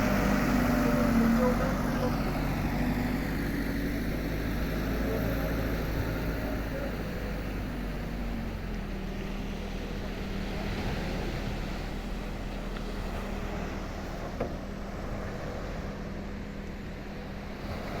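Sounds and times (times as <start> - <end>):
engine hum: 0.0 - 18.0.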